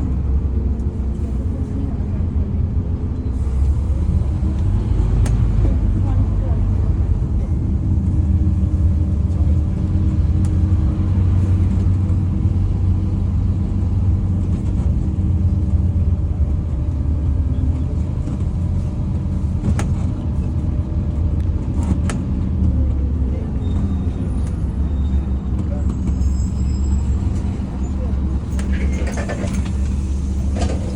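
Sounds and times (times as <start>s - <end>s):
diesel bus engine rumble: 0.0s - 30.9s
road noise: 0.0s - 30.9s.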